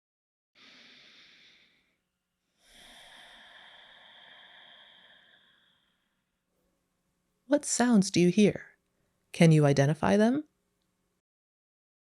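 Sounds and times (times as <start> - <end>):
person breathing deeply: 0.6 - 2.0, 2.6 - 6.4.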